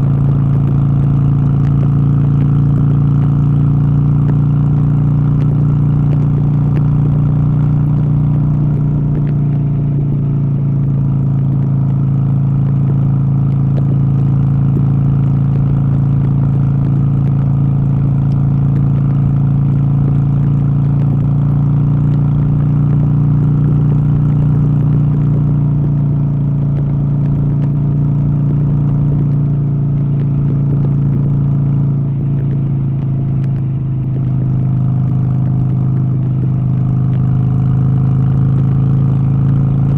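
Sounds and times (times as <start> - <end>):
steady motor hum: 0.0 - 39.9.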